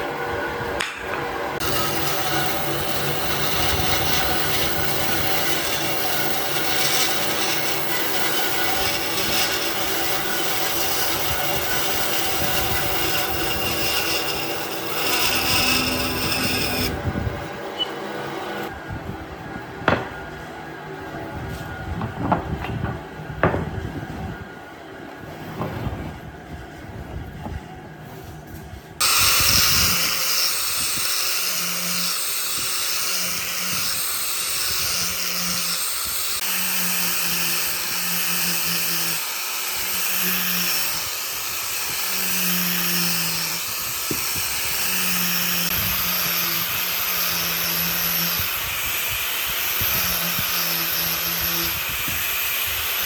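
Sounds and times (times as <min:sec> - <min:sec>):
power tool working wood: 0:00.8 - 0:18.7, 0:29.0 - 0:53.0.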